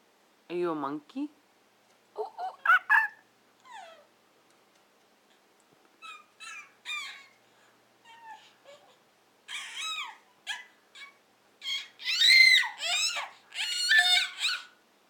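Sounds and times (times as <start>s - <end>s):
toddler making monkey hoots: 2.2s - 3.2s.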